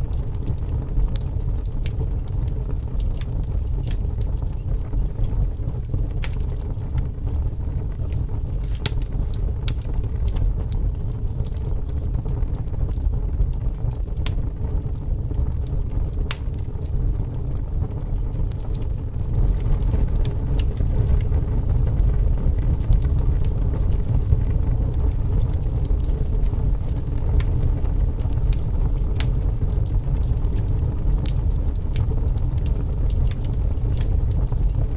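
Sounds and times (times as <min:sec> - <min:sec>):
campfire crackling: 0:00.0 - 0:34.9
steady low rumble: 0:00.0 - 0:34.9
sharp fire pops: 0:00.1 - 0:34.9.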